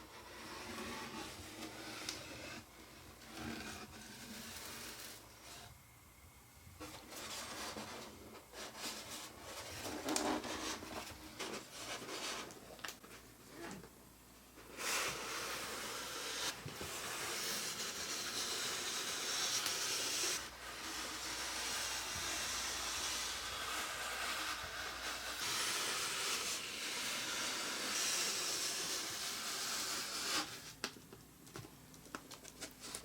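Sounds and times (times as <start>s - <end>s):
packaging rustling: 30.8s - 33.0s.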